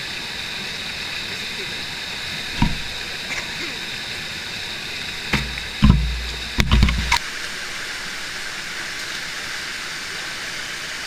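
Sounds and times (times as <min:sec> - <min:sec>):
thumps on microphone: 0:02.6 - 0:03.0, 0:05.3 - 0:07.2.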